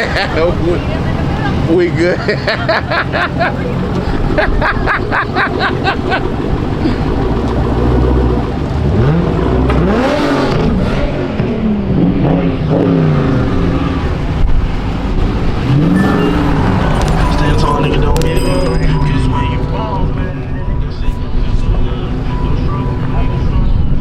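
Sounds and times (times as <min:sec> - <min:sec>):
car engine revving: 0:00.0 - 0:23.2.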